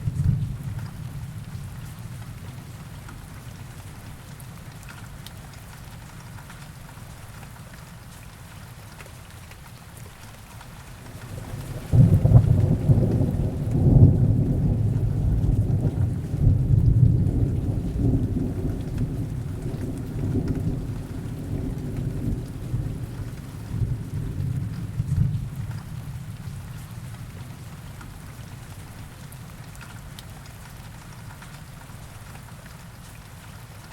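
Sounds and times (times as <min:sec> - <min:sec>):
heavy rain: 0:00.0 - 0:33.9
thunder rumbling: 0:11.1 - 0:27.3.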